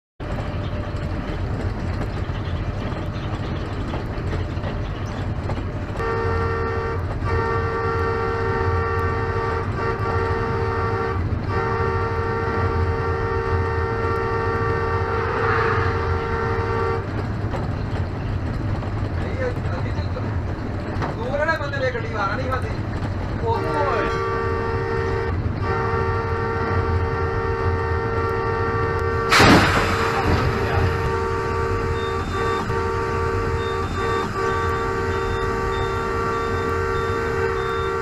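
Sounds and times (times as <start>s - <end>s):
train passing with rumble: 0.2s - 38.0s
train horn blowing: 5.9s - 17.3s, 23.5s - 38.0s.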